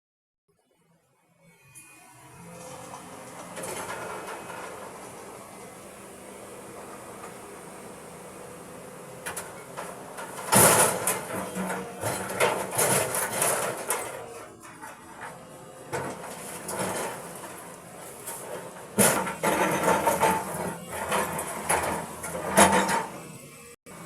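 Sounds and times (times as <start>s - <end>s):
engine running: 1.8s - 24.0s
boulders crashing into steel bed: 9.4s - 14.4s.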